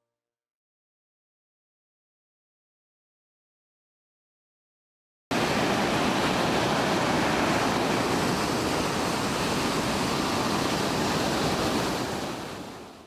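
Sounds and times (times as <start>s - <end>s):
ocean surf: 5.3s - 13.0s
strong wind: 5.3s - 13.0s.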